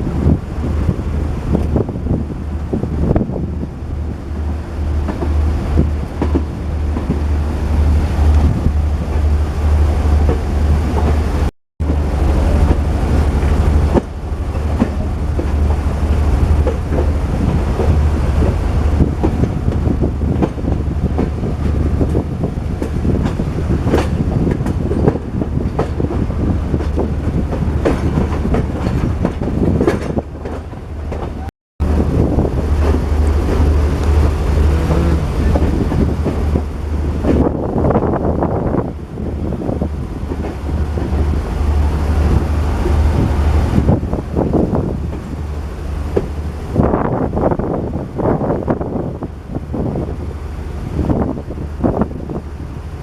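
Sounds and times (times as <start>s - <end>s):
steady low train rumble: 0.0s - 53.0s
train wheels clacking over rail joints: 4.4s - 7.4s, 11.8s - 31.5s.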